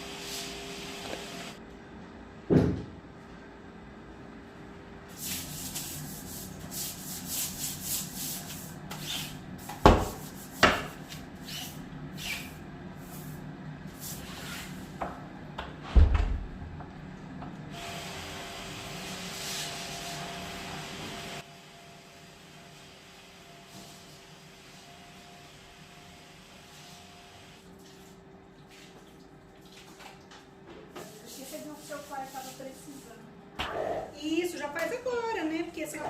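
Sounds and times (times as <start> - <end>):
scrubbing strokes: 31.0 - 33.2.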